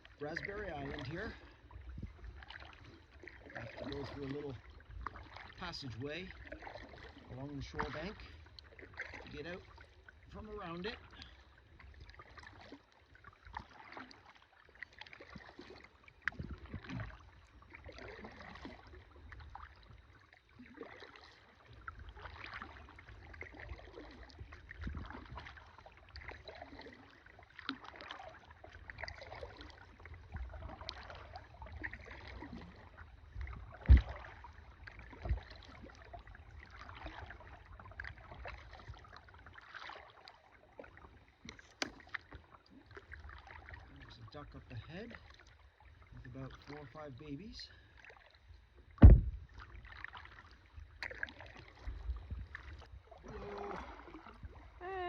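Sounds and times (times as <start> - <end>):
paddle splashing through water: 0.0 - 55.0
sharp knock: 49.0 - 49.3.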